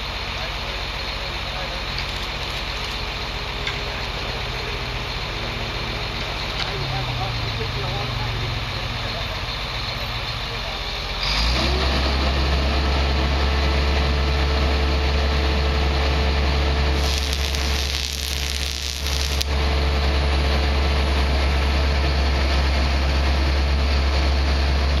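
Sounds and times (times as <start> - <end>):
low engine drone: 0.0 - 24.9
bright hiss: 17.0 - 19.5
broad rushing noise: 17.0 - 19.6.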